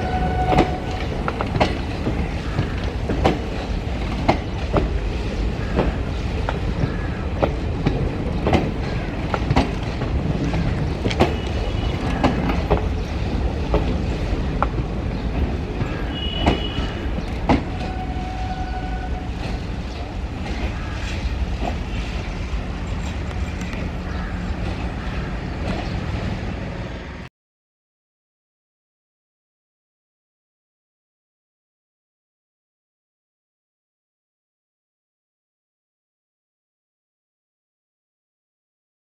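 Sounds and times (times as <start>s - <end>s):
train coaches rumbling past: 0.0s - 27.3s
wheels clicking over rail joints: 0.2s - 18.3s.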